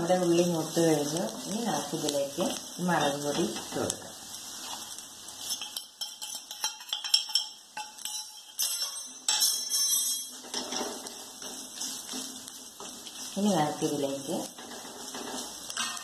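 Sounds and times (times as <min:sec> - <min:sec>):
spices crackling in hot oil: 0:00.0 - 0:16.0
wooden spatula scraping pan: 0:10.4 - 0:16.0.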